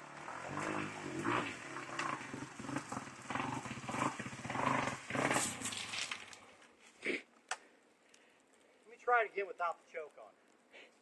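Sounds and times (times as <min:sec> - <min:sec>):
dirt bike engine sputtering: 0:00.0 - 0:06.5.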